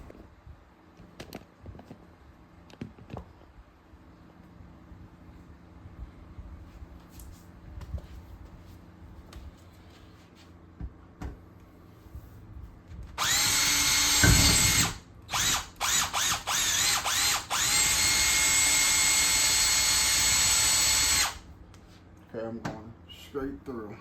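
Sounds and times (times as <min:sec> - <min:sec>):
cordless drill whining: 0:13.2 - 0:21.4.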